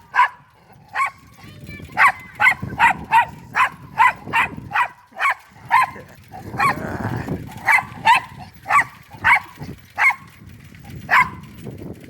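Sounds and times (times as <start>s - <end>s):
dog barking: 0.1s - 1.2s, 2.0s - 6.8s, 7.6s - 10.3s, 11.1s - 11.5s.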